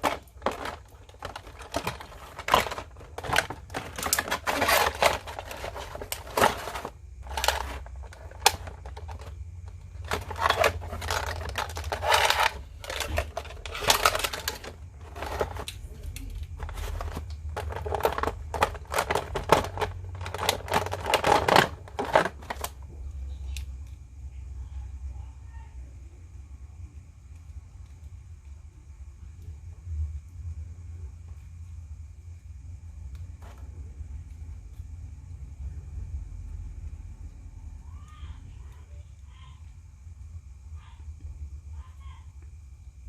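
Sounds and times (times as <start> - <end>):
hands handling plastic toy packaging: 0.0 - 23.7.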